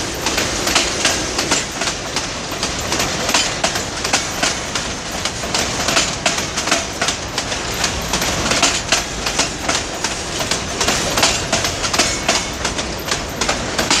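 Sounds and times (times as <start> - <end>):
freight train rumbling past: 0.0 - 14.0
steel wheels clacking over rail joints: 0.0 - 14.0.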